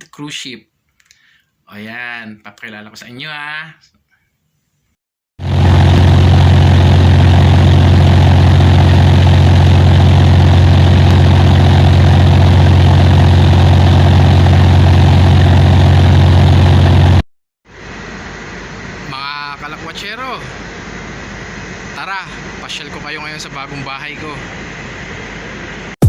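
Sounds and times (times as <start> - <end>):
mechanical drone with low hum: 5.4 - 26.0.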